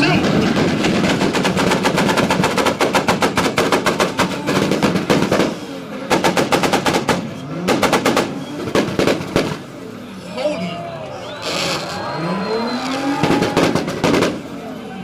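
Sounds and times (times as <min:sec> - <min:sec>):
exhaust pops and bangs: 0:00.0 - 0:09.7, 0:13.1 - 0:14.5
car engines revving hard: 0:00.0 - 0:15.0.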